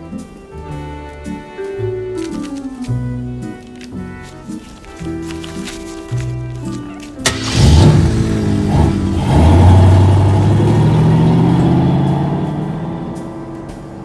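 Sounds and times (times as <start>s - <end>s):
car engine starting and revving: 7.2s - 14.0s.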